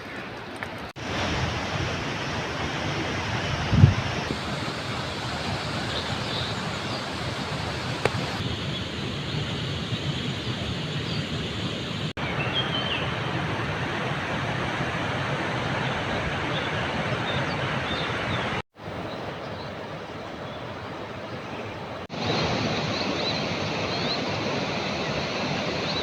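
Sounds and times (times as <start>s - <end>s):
wind buffeting microphone: 1.0s - 12.1s.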